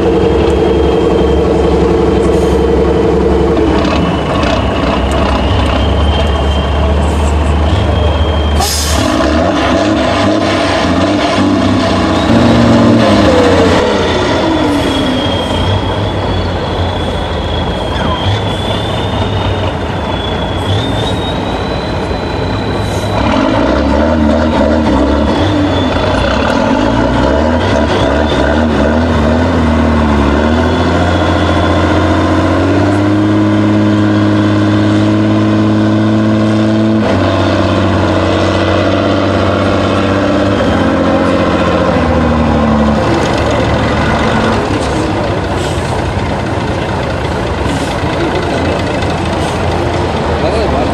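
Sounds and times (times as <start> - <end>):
heavy diesel engine revving: 0.0 - 50.9.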